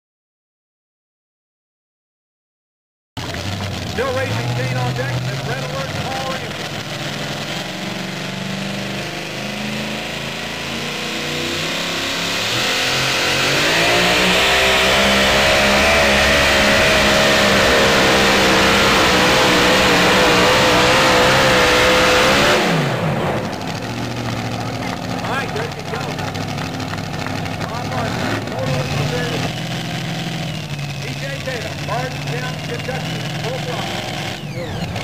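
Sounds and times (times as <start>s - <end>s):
supercharged truck engine revving: 3.2s - 35.0s.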